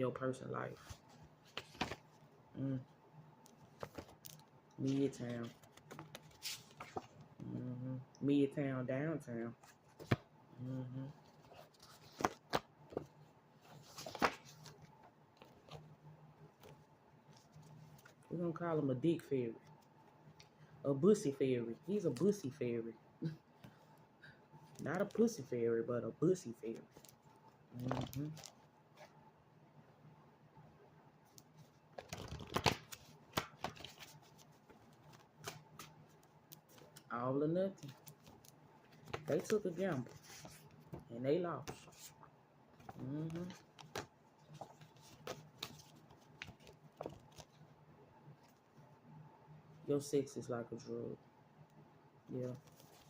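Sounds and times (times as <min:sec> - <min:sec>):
faint low hum: 0:00.0 - 0:53.0
cards rustling: 0:00.6 - 0:02.2, 0:03.5 - 0:07.2, 0:11.3 - 0:15.9, 0:31.3 - 0:37.1, 0:37.7 - 0:42.2, 0:42.8 - 0:47.6, 0:52.4 - 0:53.0
cards snapping: 0:32.0 - 0:34.0.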